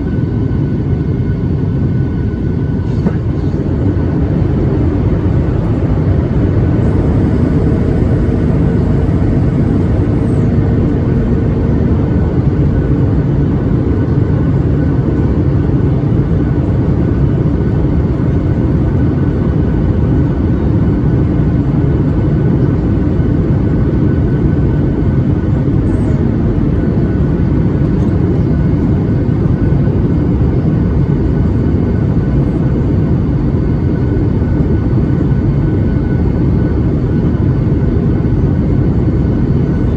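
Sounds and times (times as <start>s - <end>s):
aircraft cabin roar: 0.0s - 39.9s
faint steady whine: 0.9s - 18.1s.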